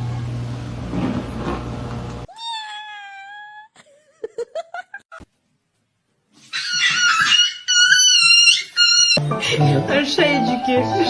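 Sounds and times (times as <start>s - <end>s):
cat meowing: 2.3s - 3.7s.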